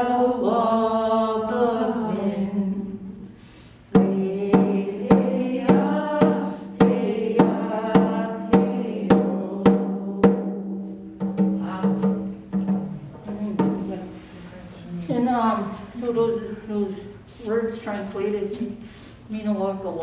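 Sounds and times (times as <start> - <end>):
woman singing: 0.0 - 3.2, 4.0 - 10.4, 11.4 - 12.4
drum beating: 3.9 - 16.4.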